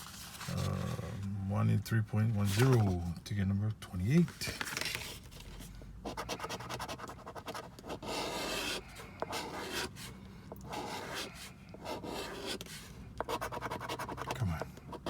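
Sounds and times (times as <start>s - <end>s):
lottery ticket being scratched: 13.3s - 14.6s.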